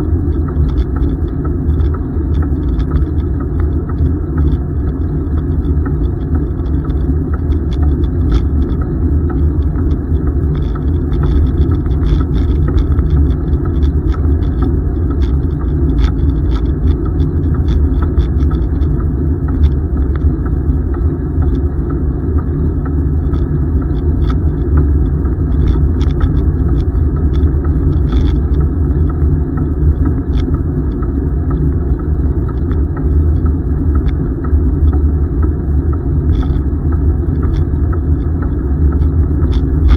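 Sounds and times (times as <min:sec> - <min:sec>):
light clicks and rattles: 0:00.0 - 0:39.9
wind rumble on microphone: 0:00.0 - 0:39.9.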